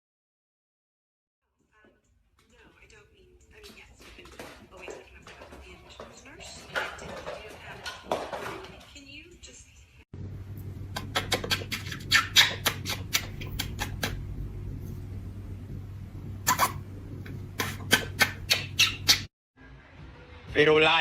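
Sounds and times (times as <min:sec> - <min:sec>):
steady low hum: 0:10.2 - 0:19.3
pet animal squeaking and clicking: 0:11.0 - 0:14.2, 0:17.6 - 0:19.3.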